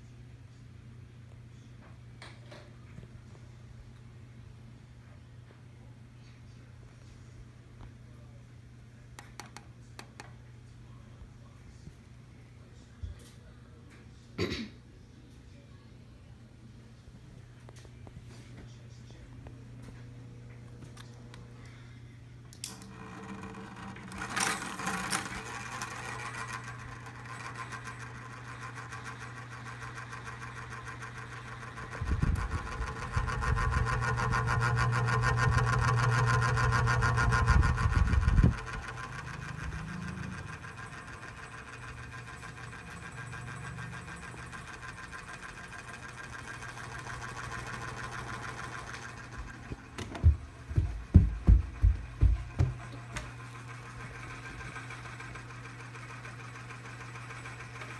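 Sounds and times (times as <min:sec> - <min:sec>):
small fan motor humming: 0:15.5 - 0:57.9
sharp knocks: 0:50.0 - 0:52.9.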